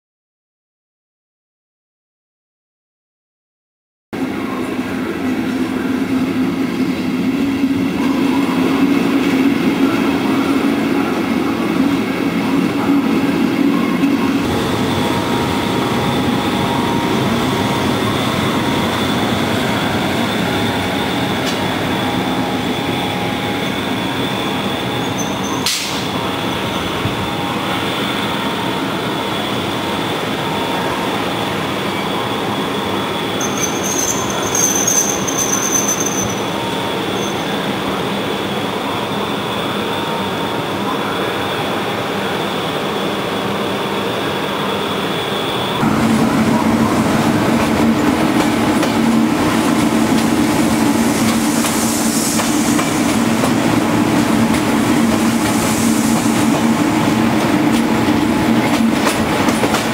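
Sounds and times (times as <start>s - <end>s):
train running noise: 4.2s - 59.9s
high wheel squeal: 15.2s - 31.1s, 31.9s - 45.8s.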